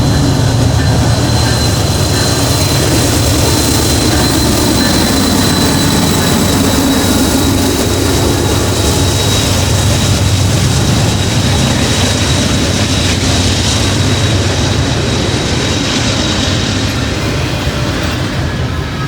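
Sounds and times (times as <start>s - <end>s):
thin high tone: 0.0s - 10.2s
freight train rumbling past: 0.0s - 19.0s.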